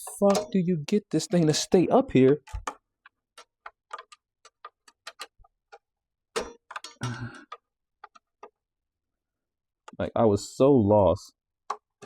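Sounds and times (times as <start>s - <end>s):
screwdriver clicks and taps on metal: 0.0s - 0.6s, 2.1s - 8.6s.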